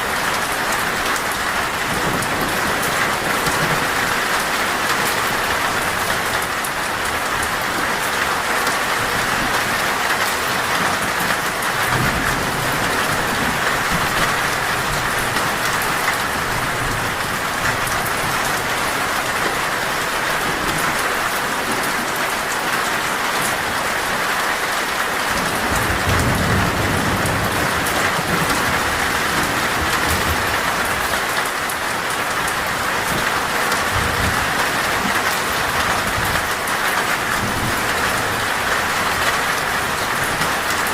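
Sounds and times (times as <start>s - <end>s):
heavy rain on a metal roof: 0.0s - 40.9s
thunder rumbling: 25.4s - 31.2s.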